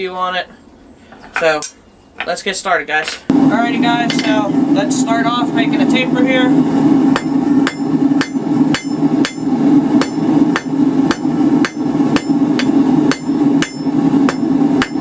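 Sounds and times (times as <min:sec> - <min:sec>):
hammer striking metal on anvil: 0:04.0 - 0:04.5, 0:07.1 - 0:15.0.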